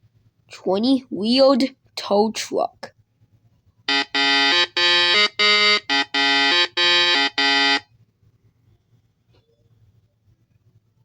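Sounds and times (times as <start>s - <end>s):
vehicle horn honking: 3.9s - 7.8s.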